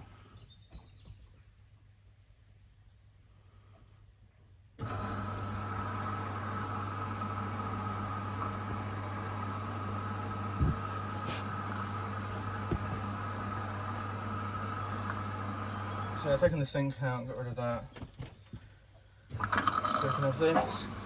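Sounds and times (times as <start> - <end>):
washing machine humming: 4.8 - 16.7, 19.3 - 21.0
short knocks: 12.6 - 13.1.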